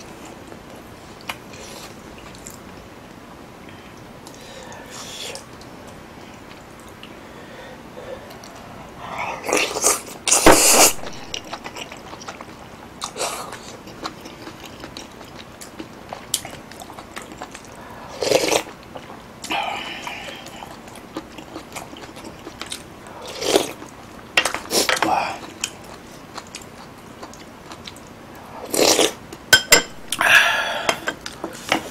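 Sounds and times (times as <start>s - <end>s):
chewing: 9.3s - 29.4s.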